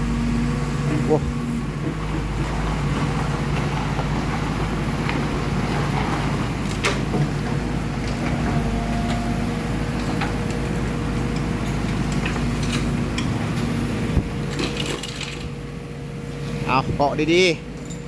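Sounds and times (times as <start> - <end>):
low mechanical drone: 5.6 - 18.0.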